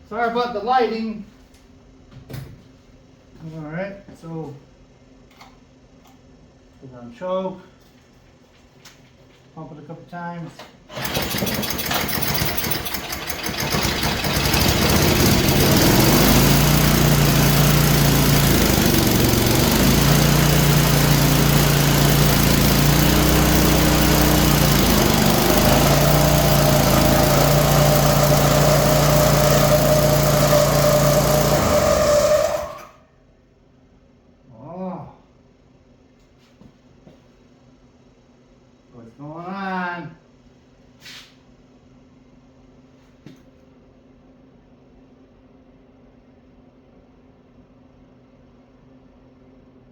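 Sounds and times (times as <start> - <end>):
snowblower engine running: 10.9 - 33.0
high squeal: 27.3 - 33.0.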